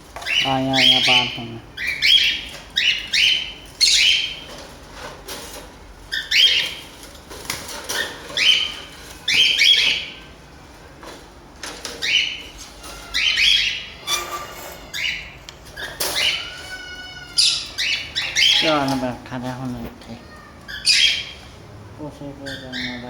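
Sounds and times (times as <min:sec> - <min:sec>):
parrot squawking: 0:00.2 - 0:04.5, 0:07.9 - 0:10.3, 0:12.0 - 0:19.0, 0:20.2 - 0:21.5, 0:22.4 - 0:23.0.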